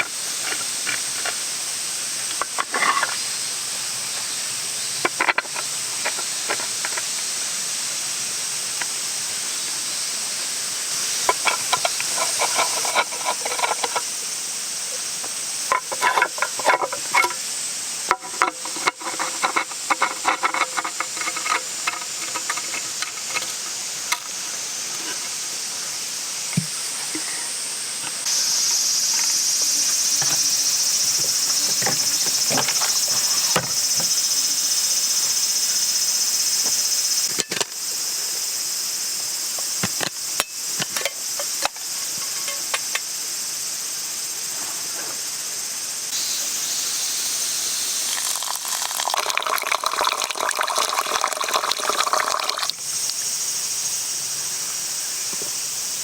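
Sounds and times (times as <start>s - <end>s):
food sizzling in a pan: 46.1s - 53.3s.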